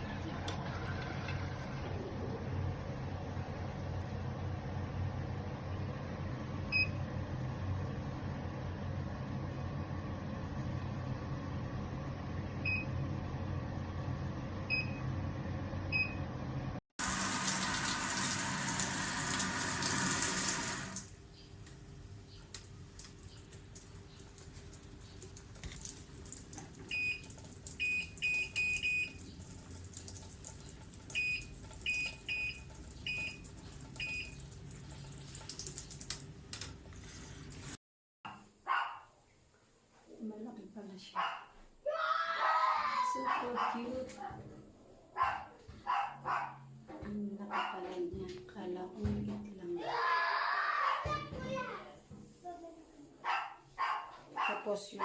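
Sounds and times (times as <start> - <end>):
running water: 17.0 - 37.8.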